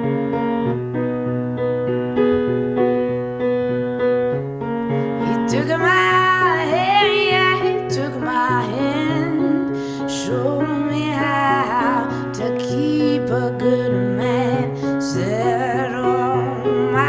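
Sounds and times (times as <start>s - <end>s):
person singing: 5.2s - 17.0s.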